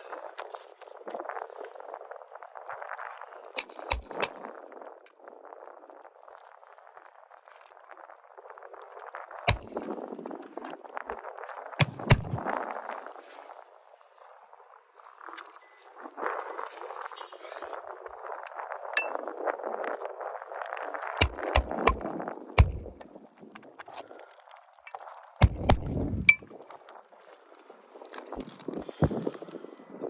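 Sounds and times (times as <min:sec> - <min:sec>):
sharp ringing knocks: 0:09.5 - 0:09.8, 0:11.8 - 0:12.5, 0:21.2 - 0:23.0, 0:25.4 - 0:26.4.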